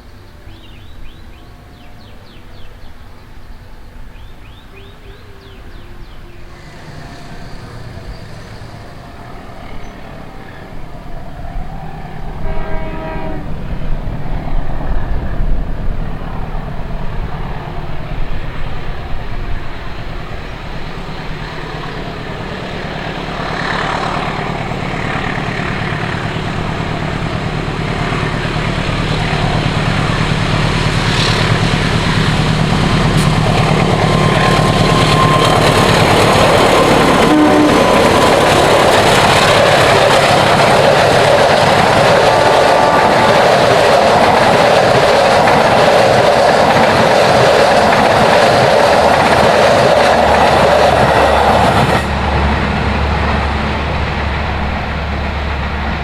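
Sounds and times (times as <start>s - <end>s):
train horn blast: 0.0s - 14.0s, 21.6s - 45.1s
diesel locomotive engine droning: 0.0s - 56.0s
train wheels clattering on rails: 17.2s - 56.0s.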